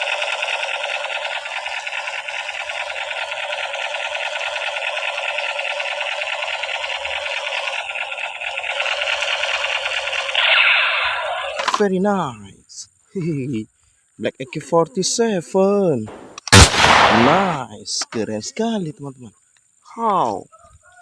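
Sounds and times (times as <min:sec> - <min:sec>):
toy machine gun rattle: 0:00.0 - 0:11.8.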